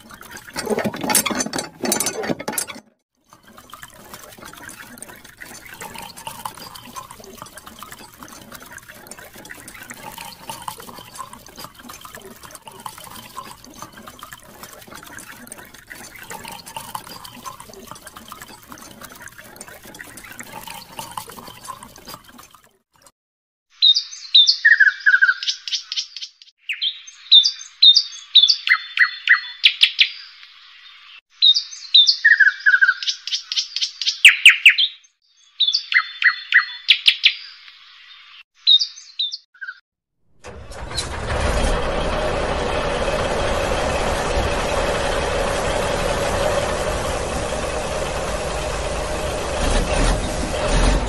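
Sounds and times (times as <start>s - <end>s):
birds chirping: 23.8s - 39.8s
vehicle engine running: 40.4s - 51.0s.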